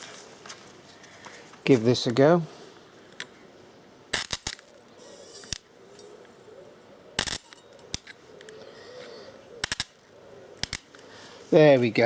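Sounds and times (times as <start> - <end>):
spot weld cracking snaps: 4.1 - 4.9, 7.2 - 8.6, 9.6 - 11.1.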